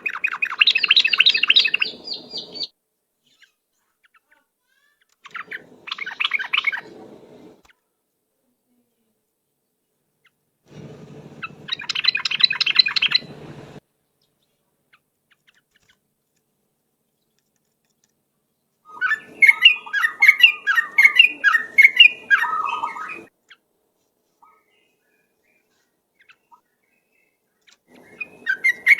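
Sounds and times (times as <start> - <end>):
low hum: 10.7 - 13.8
bird singing bubbling notes: 10.8 - 13.8, 18.9 - 23.3.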